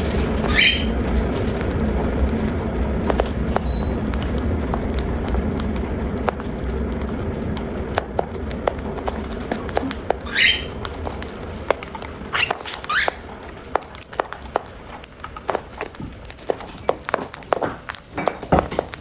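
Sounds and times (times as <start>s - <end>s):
beaks pecking at food: 0.0s - 19.0s
bird chirps falling in pitch: 0.5s - 0.9s, 10.3s - 10.7s.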